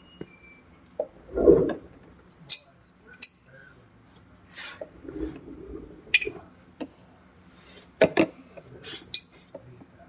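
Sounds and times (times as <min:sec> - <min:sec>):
metal tools clinking and knocking: 0:02.4 - 0:03.5, 0:06.2 - 0:06.4, 0:09.1 - 0:09.4
metal rubbing and scraping: 0:04.5 - 0:06.5.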